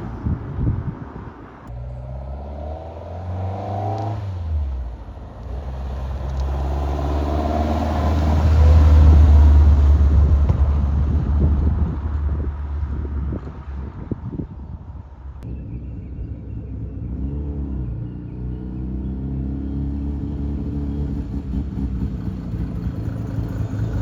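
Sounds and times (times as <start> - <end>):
car engines driving past: 0.0 - 15.4.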